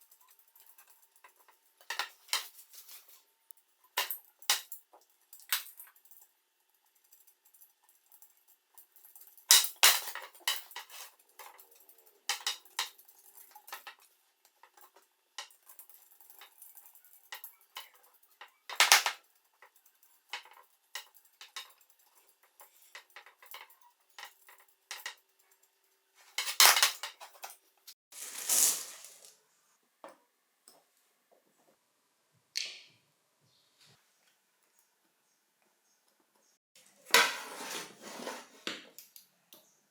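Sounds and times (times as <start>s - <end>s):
metal tools clinking: 4.0s - 25.6s.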